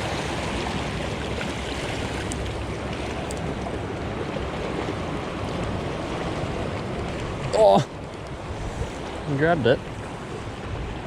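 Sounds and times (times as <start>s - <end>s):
sea swell surging through rocks: 3.5s - 11.0s.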